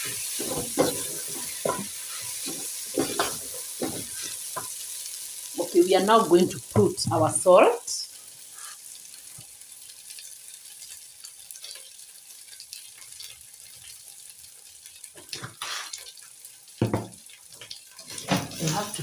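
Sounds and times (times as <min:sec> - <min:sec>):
stirring scrapes and knocks: 0:00.0 - 0:04.7
rice sizzling in hot oil: 0:00.0 - 0:19.0.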